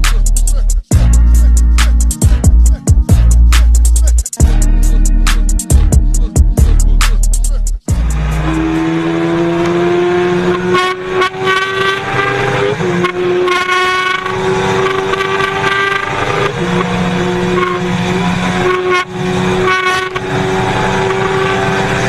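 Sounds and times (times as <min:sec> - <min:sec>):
superbike engine revving high: 0:07.9 - 0:22.0.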